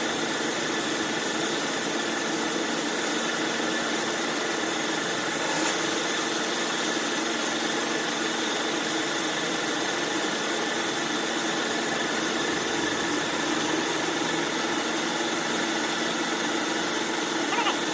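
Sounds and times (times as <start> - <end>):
bandsaw running: 4.8 - 6.7.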